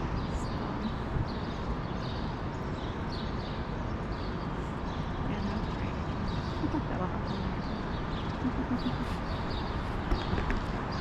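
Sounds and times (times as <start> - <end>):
low city rumble: 0.0 - 11.0
sparrows chirping: 0.0 - 11.0.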